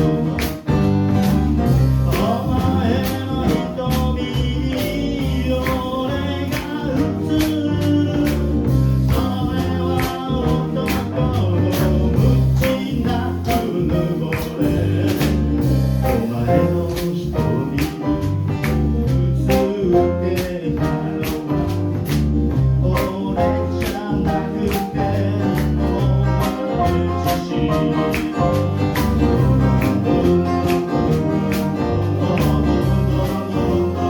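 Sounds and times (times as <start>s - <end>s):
drum or cymbal beat: 0.0s - 8.0s
jazz band playing: 0.0s - 34.0s
walking bass line: 0.0s - 34.0s.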